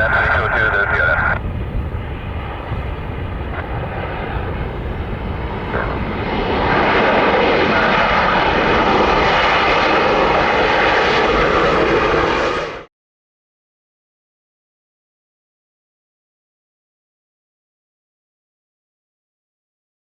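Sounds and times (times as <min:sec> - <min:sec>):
jet airliner engines passing: 0:00.0 - 0:12.9.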